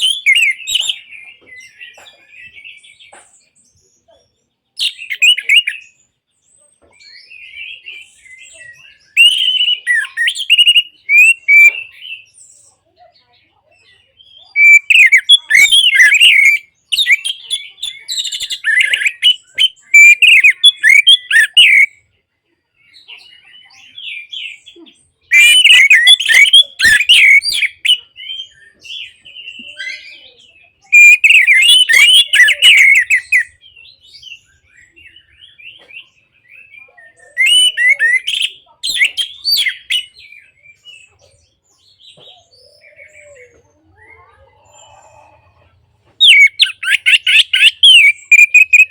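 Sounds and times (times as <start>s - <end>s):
faint bird chirps: 0.0s - 48.9s.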